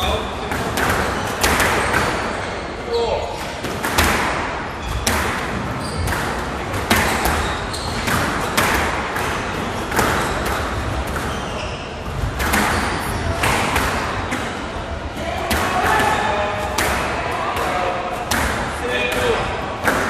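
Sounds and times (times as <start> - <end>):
squash ball hitting rackets and walls: 0.0 - 2.6, 3.4 - 20.0.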